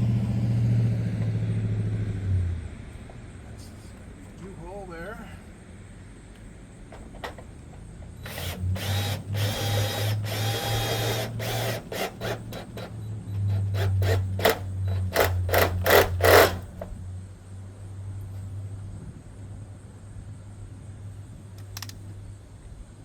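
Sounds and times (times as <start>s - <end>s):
power drill driving a screw: 8.2s - 16.9s.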